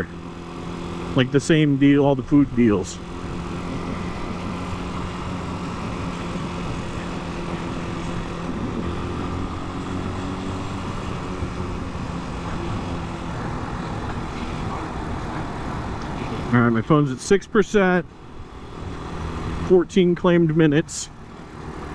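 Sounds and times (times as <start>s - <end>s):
motorcycle engine cruising: 0.0s - 21.9s
wind and road noise: 0.0s - 21.9s.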